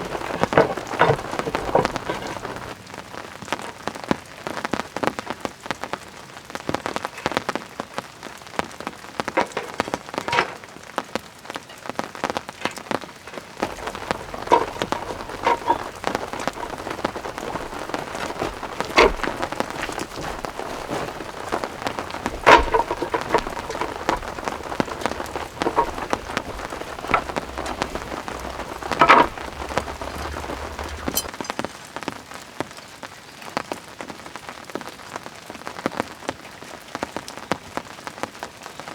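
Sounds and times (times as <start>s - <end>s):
heavy water drips: 0.0s - 2.8s, 13.6s - 31.3s
rain falling: 0.0s - 38.9s.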